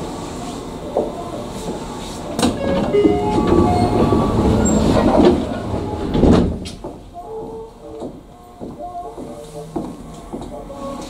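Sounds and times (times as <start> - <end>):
train rumbling on rails: 0.0 - 11.0
wheel squeals: 2.6 - 6.2.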